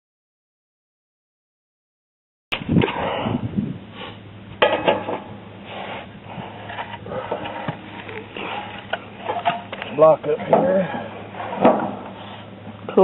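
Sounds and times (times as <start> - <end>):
metal tools clanking: 6.7 - 12.1.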